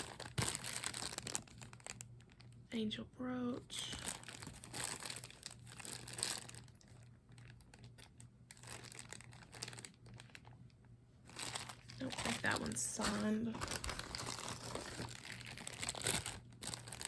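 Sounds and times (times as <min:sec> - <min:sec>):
plastic bag crinkling: 0:00.0 - 0:02.6, 0:03.7 - 0:17.0
low steady hum: 0:00.0 - 0:17.0.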